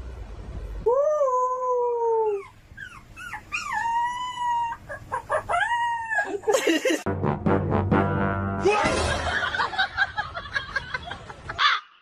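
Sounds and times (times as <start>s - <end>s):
dog howling: 3.4s - 6.4s.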